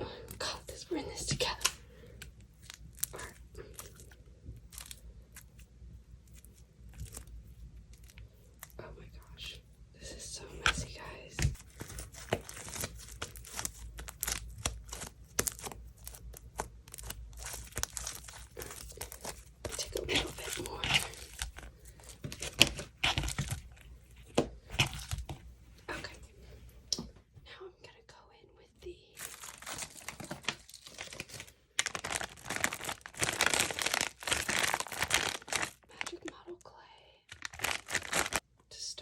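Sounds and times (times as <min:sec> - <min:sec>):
slime squished and stretched: 0:01.4 - 0:08.8, 0:11.4 - 0:25.5, 0:29.2 - 0:36.0, 0:37.3 - 0:38.4.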